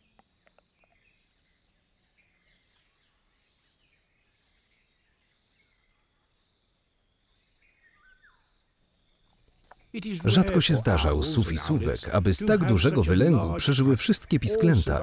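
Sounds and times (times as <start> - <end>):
faint bird chirps and whistles: 0.0 - 9.9.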